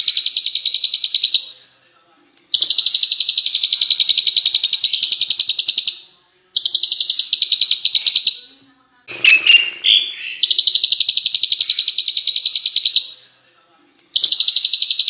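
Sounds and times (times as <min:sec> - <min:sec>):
songbird high trill: 0:09.1 - 0:10.5
bird whistled notes: 0:09.1 - 0:10.6.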